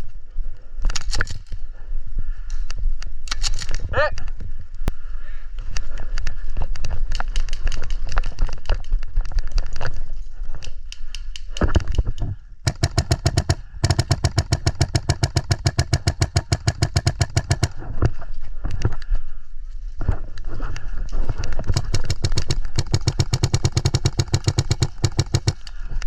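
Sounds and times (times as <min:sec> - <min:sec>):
single clicks and shots: 0:02.7 - 0:03.8
airsoft gun firing bursts: 0:12.6 - 0:17.8, 0:21.7 - 0:25.7.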